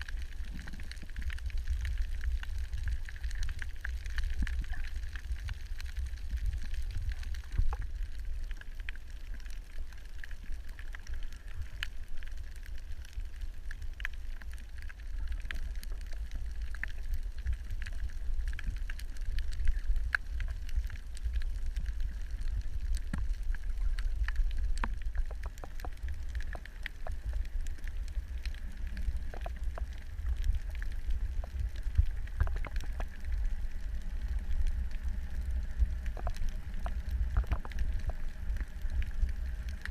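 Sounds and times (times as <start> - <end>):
low underwater rumble: 0.0 - 39.9
sharp clicks and crackles: 0.0 - 39.9.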